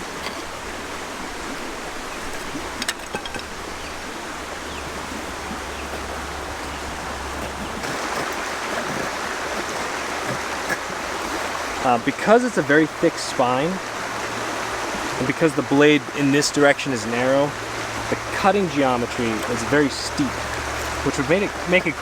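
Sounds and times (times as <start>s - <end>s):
steady outdoor rushing noise: 0.0s - 22.0s.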